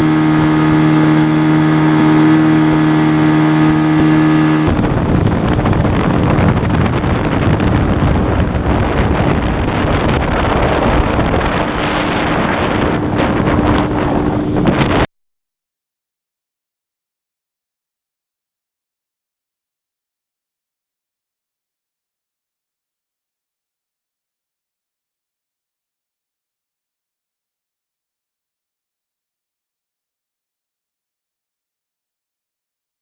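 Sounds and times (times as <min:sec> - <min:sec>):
speedboat engine running: 0:00.0 - 0:15.1
wind rushing on microphone: 0:00.0 - 0:15.1.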